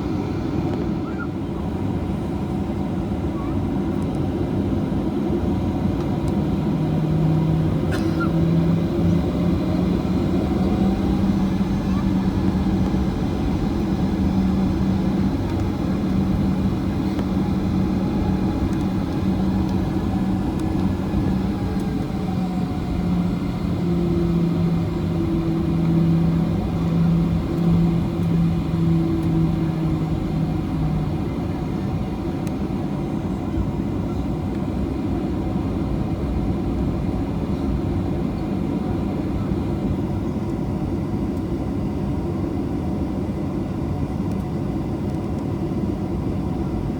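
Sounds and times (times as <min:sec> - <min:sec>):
aircraft cabin engine roar: 0:00.0 - 0:46.9.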